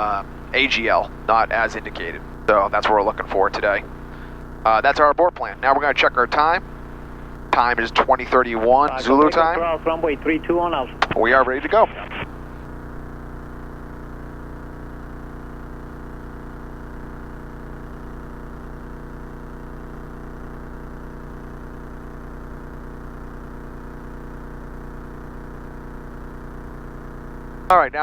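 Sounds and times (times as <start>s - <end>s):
propeller plane engine droning: 0.0s - 13.2s.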